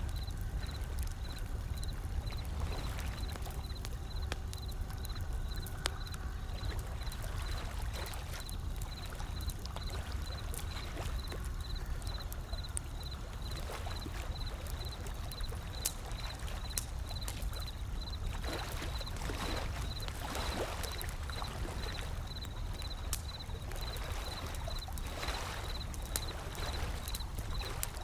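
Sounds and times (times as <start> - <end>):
wood fire crackling: 0.0 - 28.0
ocean waves washing: 18.4 - 28.0.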